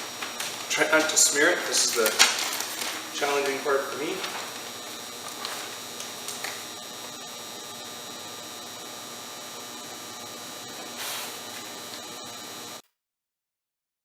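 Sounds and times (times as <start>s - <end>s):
plastic sheet rustling: 0.0s - 6.8s, 10.8s - 11.8s
electrical hum and hiss: 0.0s - 12.8s.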